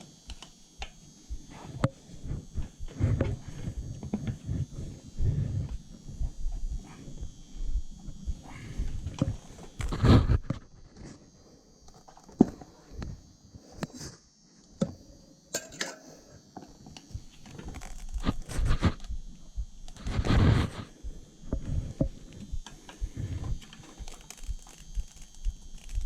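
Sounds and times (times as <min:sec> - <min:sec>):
rustling scrape: 0:20.0 - 0:20.9.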